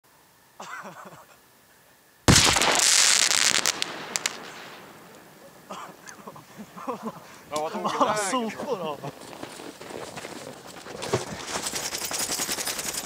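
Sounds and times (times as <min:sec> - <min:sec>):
sharp cracks: 0:02.3 - 0:05.6.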